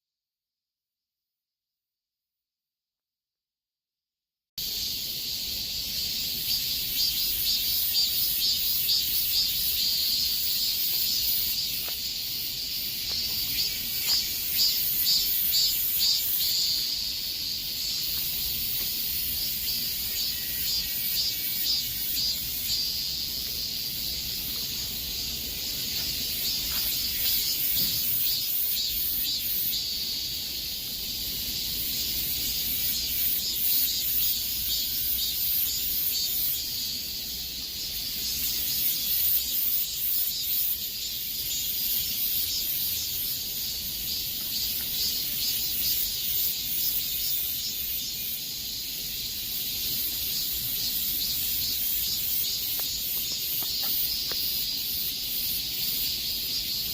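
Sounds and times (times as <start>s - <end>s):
cicadas buzzing: 4.6s - 56.9s.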